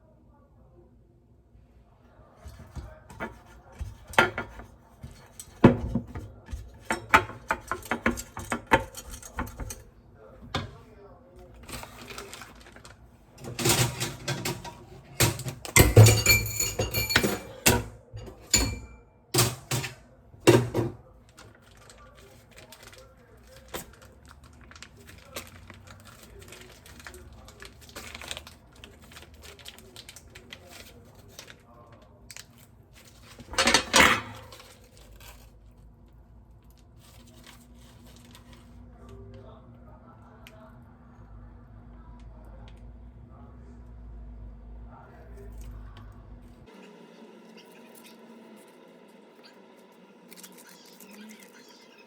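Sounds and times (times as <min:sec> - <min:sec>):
kitchenware clattering and clinking: 0:02.4 - 0:10.9, 0:11.5 - 0:31.6, 0:33.0 - 0:35.5.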